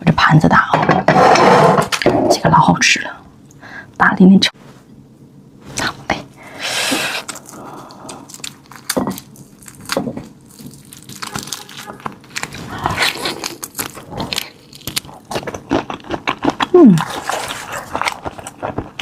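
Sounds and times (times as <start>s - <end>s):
chewing crunches: 7.2s - 19.0s.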